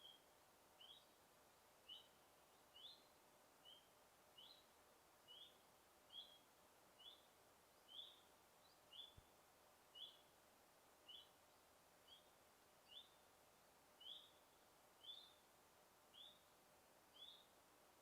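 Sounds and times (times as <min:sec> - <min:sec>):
soft background hiss: 0:00.0 - 0:18.0
bird high chirp: 0:14.0 - 0:14.4, 0:17.1 - 0:17.5.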